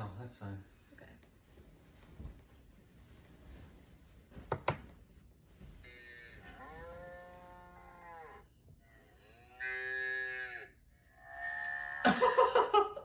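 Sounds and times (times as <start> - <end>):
cows mooing: 5.9 - 12.0.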